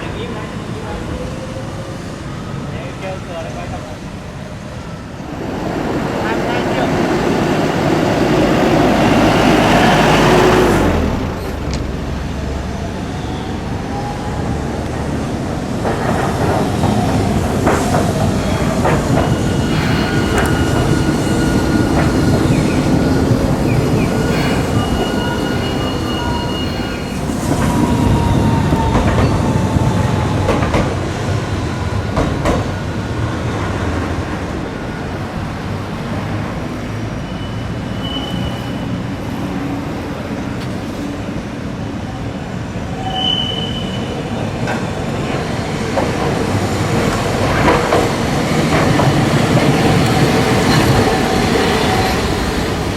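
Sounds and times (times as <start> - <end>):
wheels clacking over rail joints: 44.6 - 52.9.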